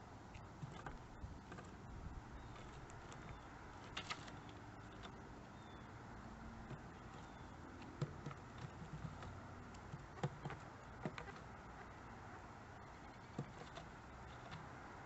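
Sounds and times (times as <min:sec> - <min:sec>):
woodpecker pecking at wood: 0:02.4 - 0:05.6, 0:06.5 - 0:12.0, 0:13.0 - 0:15.0.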